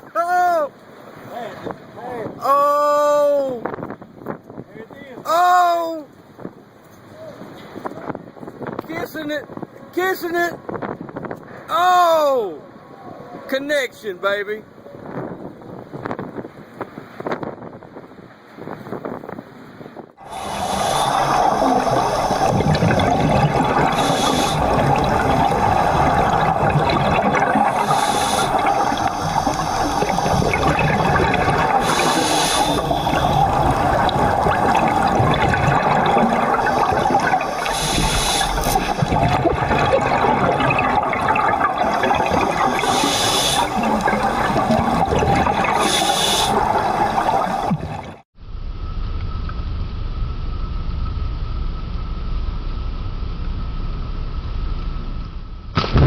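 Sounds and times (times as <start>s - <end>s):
hissing water surge: 20.2s - 48.2s
water rushing and churning: 20.2s - 48.3s.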